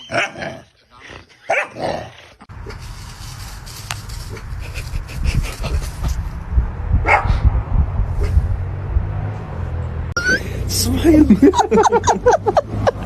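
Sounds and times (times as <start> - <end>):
low rumble: 2.6 - 10.2.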